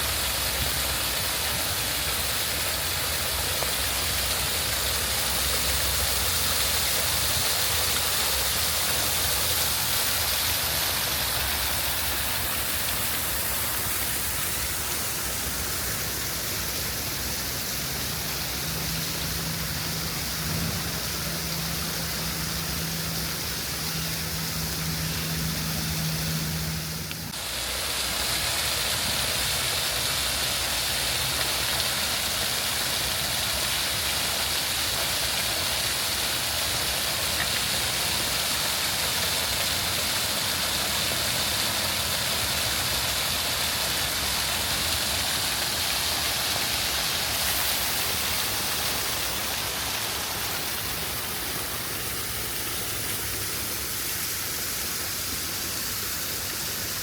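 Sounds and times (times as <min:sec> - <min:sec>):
steady rushing outdoor noise: 0:00.0 - 0:57.0
low engine-like hum: 0:00.1 - 0:34.4.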